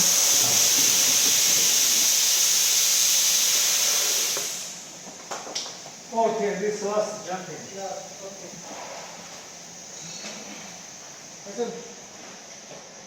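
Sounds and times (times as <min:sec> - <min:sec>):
pressurised gas hissing: 0:00.0 - 0:11.6.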